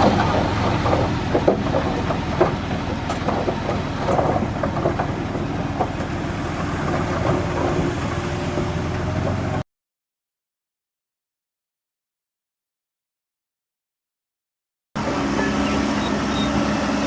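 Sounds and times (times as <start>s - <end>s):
heavy machinery diesel engine: 0.0s - 9.6s, 15.0s - 17.0s
metallic clanks and rattles: 0.0s - 9.6s.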